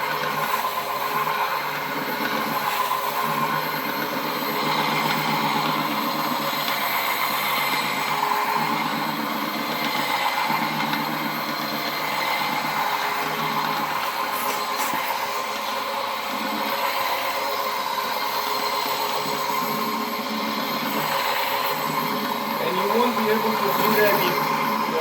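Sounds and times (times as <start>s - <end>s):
floor polishing machine humming: 0.0s - 25.0s
pad friction on stone floor: 14.0s - 15.1s.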